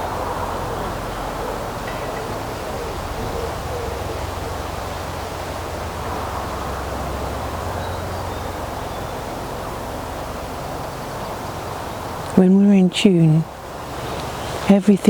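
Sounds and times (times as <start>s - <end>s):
low rumble: 0.0s - 12.3s
rushing hiss: 0.0s - 12.3s, 13.5s - 14.8s.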